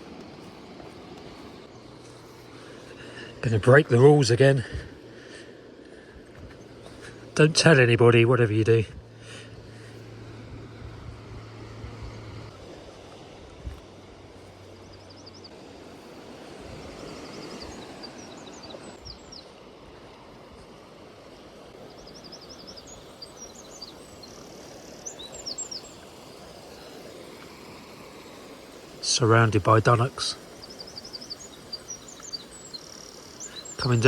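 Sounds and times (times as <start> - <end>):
songbirds singing: 0.0 - 12.7, 13.6 - 19.6, 21.7 - 34.0
steady hiss: 0.0 - 34.0
low hum: 1.5 - 15.5.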